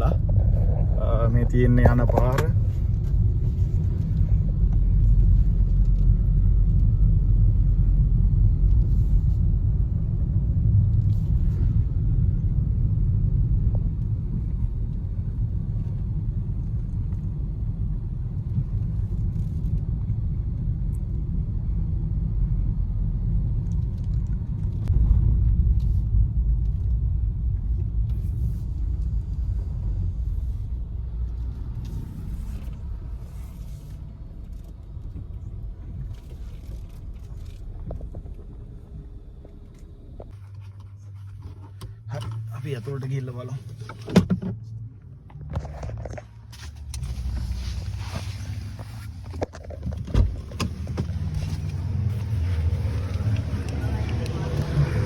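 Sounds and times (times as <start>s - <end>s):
car driving rumble: 0.0s - 55.0s.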